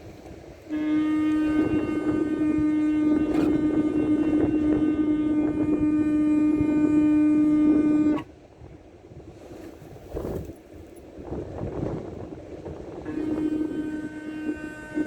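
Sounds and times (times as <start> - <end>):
shofar blowing long note: 0.7 - 8.3, 13.0 - 15.0.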